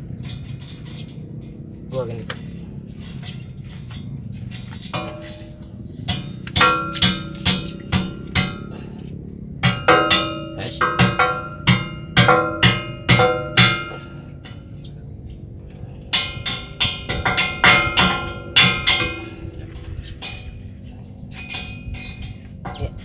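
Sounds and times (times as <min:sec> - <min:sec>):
hammer blows on metal: 0:05.0 - 0:15.0, 0:16.0 - 0:20.6.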